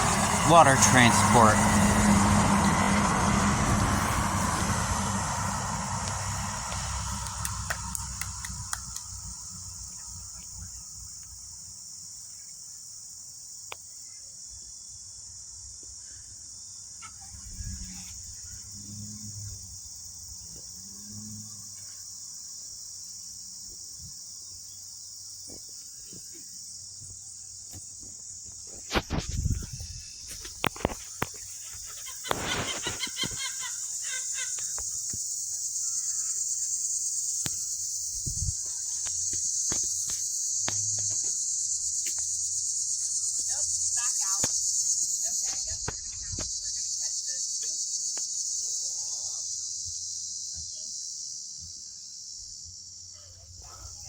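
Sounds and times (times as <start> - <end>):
truck engine rumble: 0.0 - 11.5, 36.4 - 46.8
insects chirring: 0.0 - 54.0.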